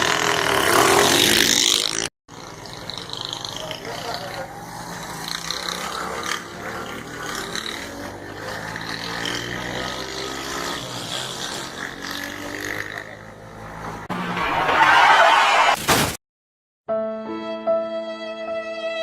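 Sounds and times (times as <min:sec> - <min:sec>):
motorcycle engine accelerating: 0:00.0 - 0:14.4.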